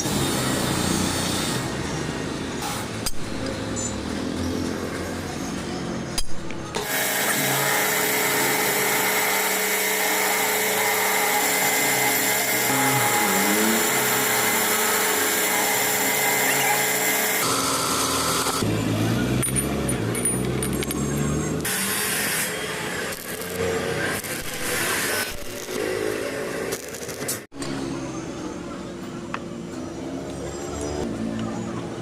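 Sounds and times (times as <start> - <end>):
power tool whining: 6.8 - 18.7.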